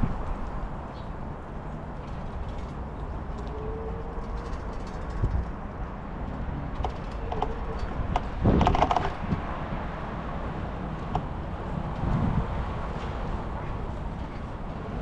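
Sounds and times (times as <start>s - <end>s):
wind and road rumble: 0.0s - 15.0s
bicycle clicks and rattles: 0.9s - 9.4s.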